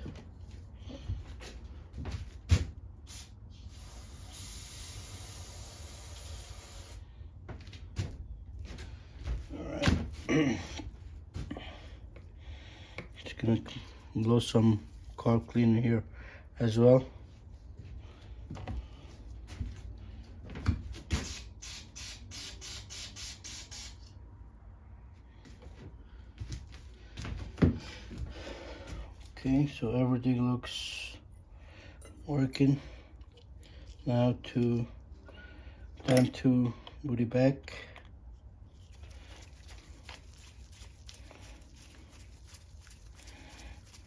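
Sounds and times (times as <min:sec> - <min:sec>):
aerosol spray hissing: 0:03.1 - 0:07.0, 0:21.2 - 0:24.1.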